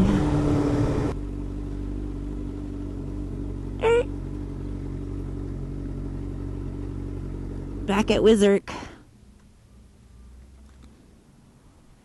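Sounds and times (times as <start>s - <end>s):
motorcycle engine idling: 1.2s - 10.2s.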